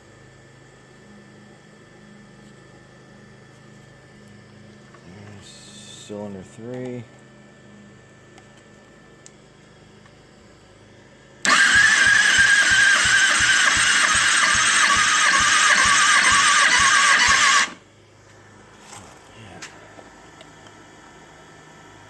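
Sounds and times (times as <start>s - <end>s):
motorcycle starter whirring: 11.4s - 17.8s.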